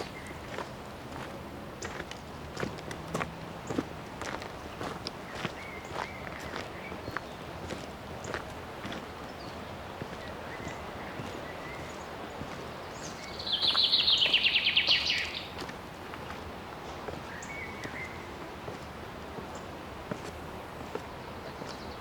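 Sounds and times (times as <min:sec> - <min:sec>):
soft footsteps on trail: 0:00.0 - 0:22.0
songbird trilling: 0:12.9 - 0:15.6.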